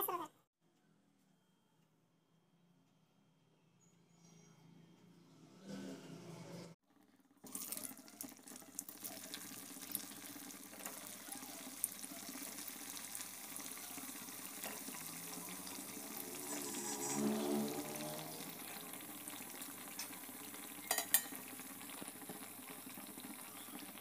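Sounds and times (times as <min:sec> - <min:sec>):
food deep-frying in oil: 0:06.9 - 0:24.0.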